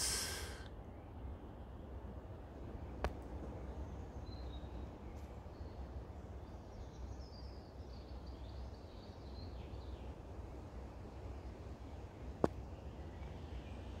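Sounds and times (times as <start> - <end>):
songbird singing: 3.0 - 10.3, 11.4 - 14.0.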